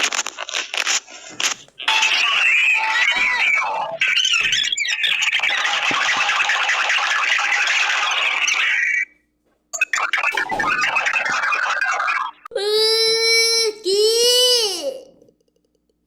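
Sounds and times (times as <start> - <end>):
cockatiel whistling and chattering: 3.1 - 9.0.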